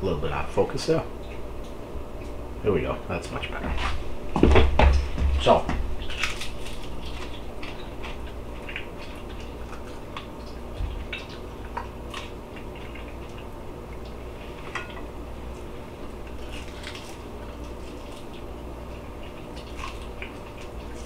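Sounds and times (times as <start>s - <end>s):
steady low hum: 0.0s - 21.0s
person chewing crunchy food: 5.5s - 14.8s, 15.4s - 21.0s.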